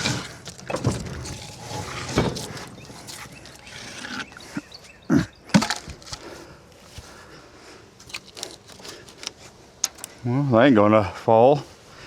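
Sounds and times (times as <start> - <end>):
firewood logs knocking together: 0.0 - 7.2, 8.0 - 10.2.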